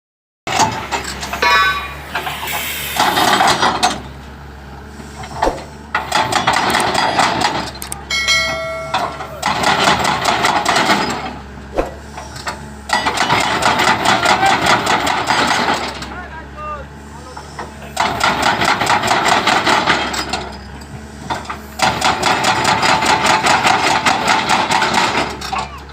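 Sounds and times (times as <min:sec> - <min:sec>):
excavator engine hum: 0:00.5 - 0:25.9
hydraulic breaker hammering: 0:05.9 - 0:11.4, 0:12.8 - 0:16.0, 0:21.4 - 0:25.5.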